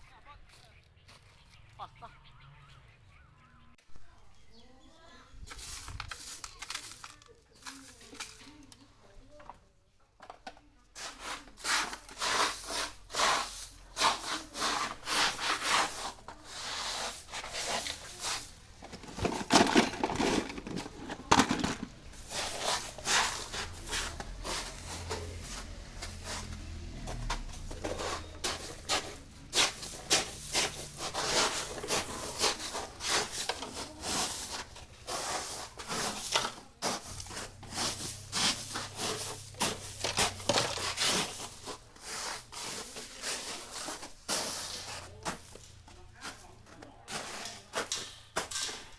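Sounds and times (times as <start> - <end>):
rubbing and scraping strokes: 11.0 - 48.9.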